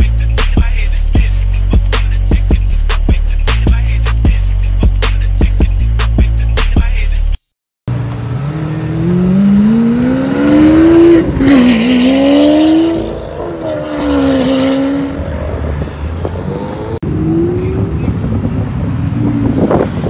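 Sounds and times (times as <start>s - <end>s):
music: 0.0s - 7.5s
sports car accelerating hard: 7.9s - 20.0s.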